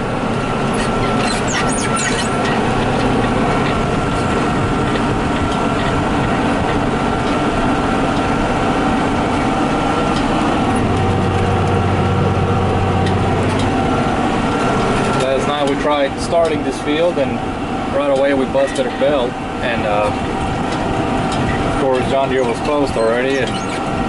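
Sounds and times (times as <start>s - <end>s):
deep low hum: 0.0s - 15.2s
diesel engine drone in cab: 0.0s - 24.0s
thin steady whine: 0.0s - 24.0s.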